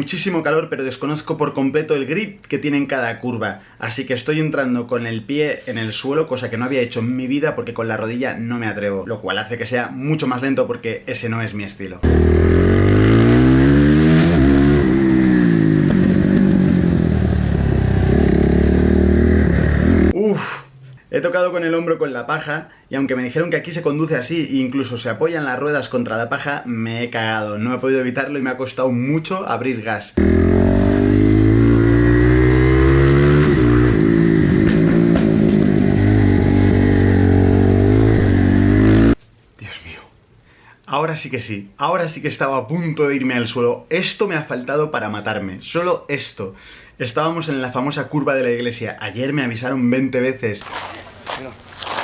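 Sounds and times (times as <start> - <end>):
motorcycle engine accelerating: 12.0 - 20.1, 30.2 - 39.2.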